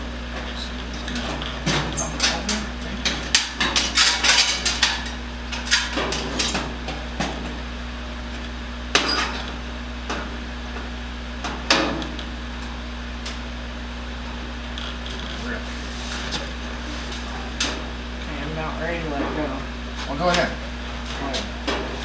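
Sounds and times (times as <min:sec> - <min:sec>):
sheet metal clanking: 0:01.1 - 0:07.6.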